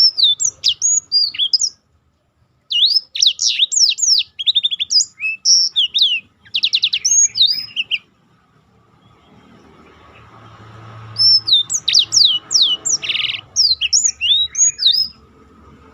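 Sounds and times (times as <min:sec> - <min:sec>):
bird singing whistles and trills: 0:00.0 - 0:01.8, 0:02.7 - 0:08.1, 0:11.0 - 0:15.2.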